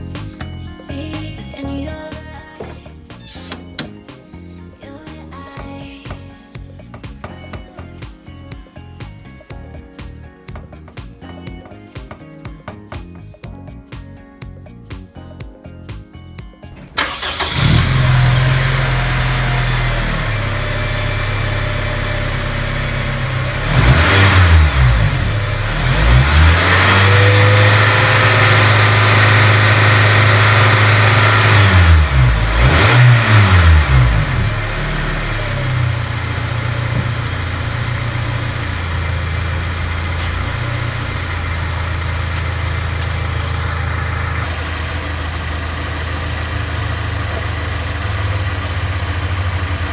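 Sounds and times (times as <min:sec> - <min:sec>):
car engine idling and revving: 0:16.7 - 0:49.9.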